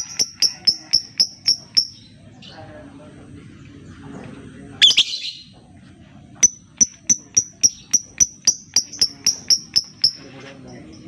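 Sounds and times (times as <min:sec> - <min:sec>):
high ticking bird calls: 0:00.0 - 0:02.2, 0:06.4 - 0:11.0
bird chirping: 0:00.0 - 0:02.9, 0:03.5 - 0:11.0.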